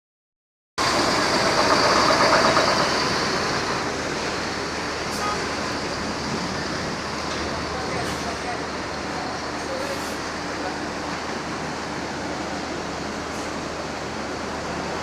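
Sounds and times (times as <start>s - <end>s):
bus engine running: 0.8s - 15.0s
vehicle noise: 0.8s - 15.0s.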